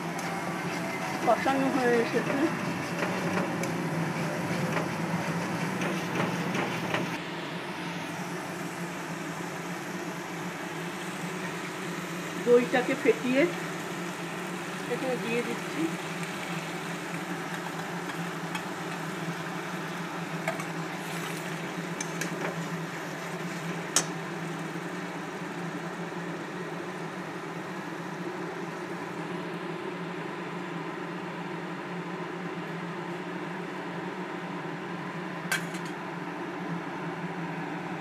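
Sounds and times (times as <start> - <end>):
food cooking in a pan: 0.0 - 29.3
kitchen hum and hiss: 0.0 - 38.0.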